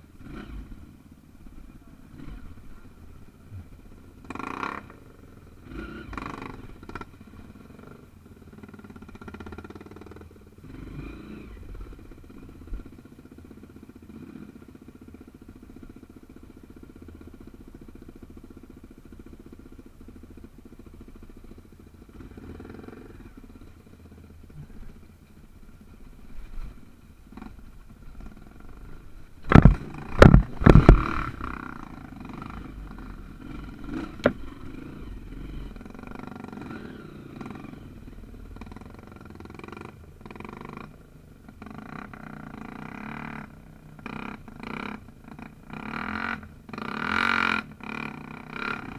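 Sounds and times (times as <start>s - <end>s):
trail motorcycle engine running: 0.0s - 48.9s
loud sharp knocks: 29.5s - 31.1s.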